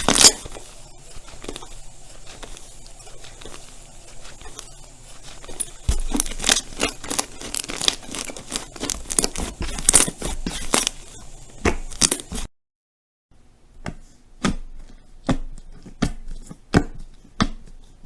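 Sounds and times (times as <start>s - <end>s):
slime crackling and popping: 0.0s - 11.1s.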